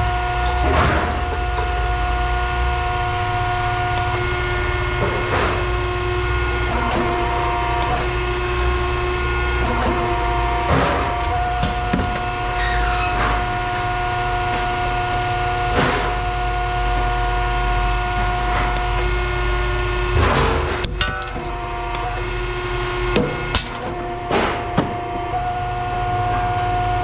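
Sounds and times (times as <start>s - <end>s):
machine humming: 0.0s - 27.0s.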